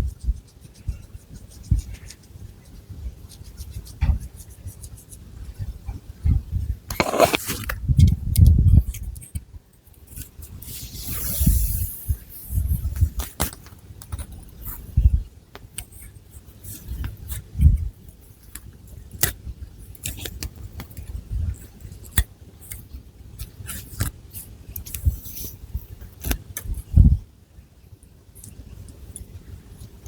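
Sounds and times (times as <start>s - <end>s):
fingernails scratching through hair: 6.9s - 7.6s.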